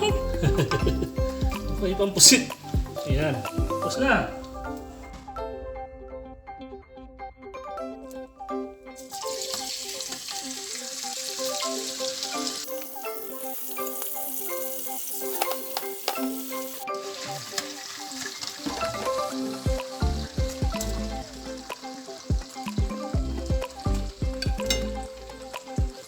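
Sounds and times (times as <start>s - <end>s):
light music with mallet notes: 0.0s - 6.0s, 11.4s - 26.0s
food sizzling in a pan: 9.0s - 26.0s.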